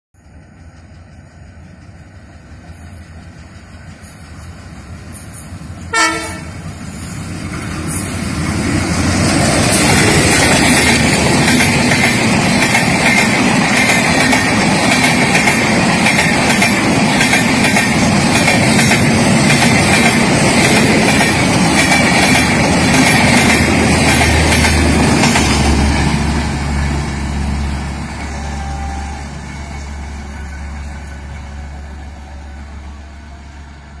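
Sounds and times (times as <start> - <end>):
train wheels rushing on rails: 0.2 - 34.0
train horn blast: 5.9 - 6.6, 28.2 - 34.0
rhythmic wheel clatter: 9.6 - 26.2.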